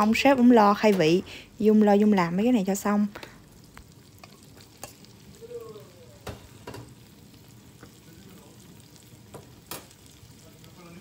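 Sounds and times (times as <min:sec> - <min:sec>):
onions sizzling in oil: 0:00.0 - 0:11.0
metal ladle knocking on pan: 0:06.2 - 0:06.9.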